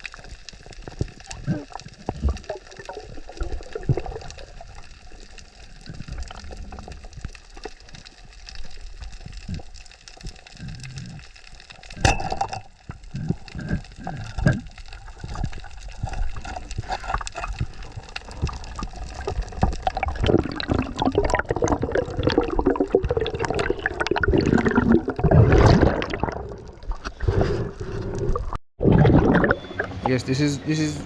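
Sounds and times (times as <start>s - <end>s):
water sloshing and splashing: 11.7s - 30.2s.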